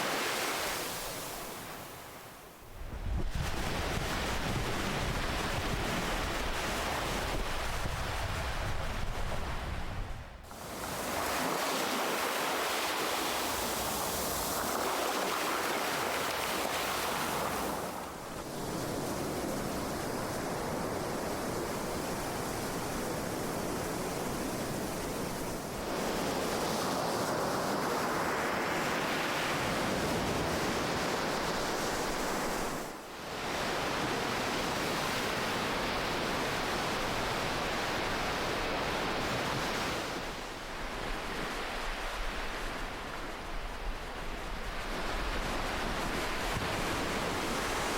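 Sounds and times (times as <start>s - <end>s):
ocean waves washing: 3.2s - 26.2s.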